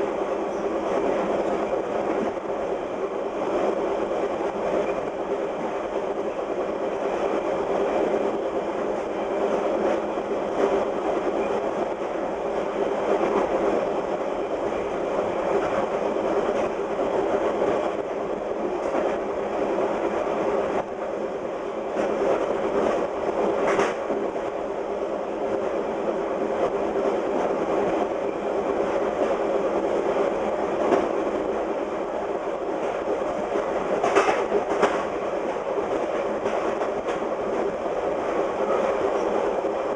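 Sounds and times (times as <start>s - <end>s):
rail joint clicks: 0.0s - 39.9s
train wheels rumbling on track: 0.0s - 39.9s
sharp train clack: 22.0s - 24.3s, 30.8s - 31.4s, 32.8s - 39.5s.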